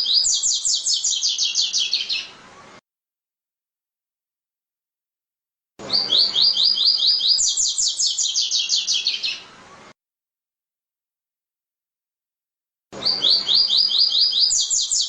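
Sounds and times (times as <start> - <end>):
bird singing: 0.0 - 2.4, 5.9 - 9.5, 13.0 - 15.0.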